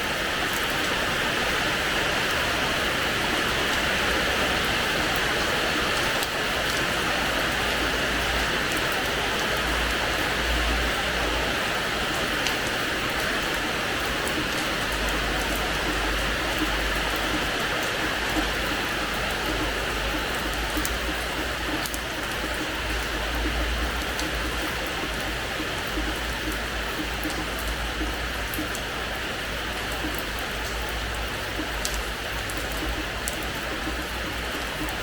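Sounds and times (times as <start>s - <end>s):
steady rain hissing: 0.0s - 35.0s
single raindrops ticking: 12.4s - 35.0s.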